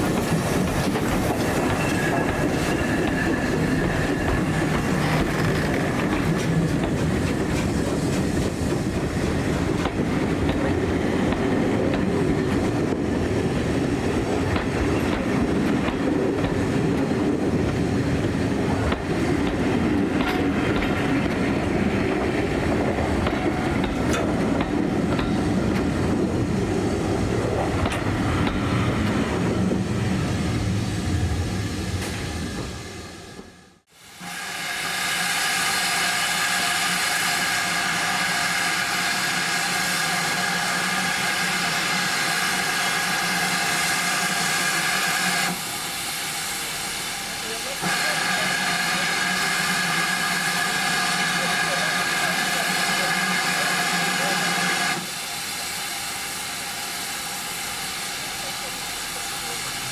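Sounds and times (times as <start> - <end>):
train wheels clattering over rail joints: 0.0 - 13.3, 14.1 - 26.4.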